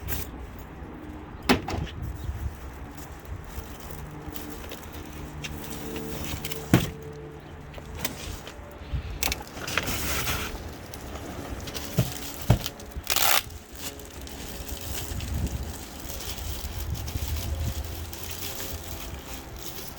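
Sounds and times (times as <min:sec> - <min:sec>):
packaging scraping and rustling: 0:02.8 - 0:19.9.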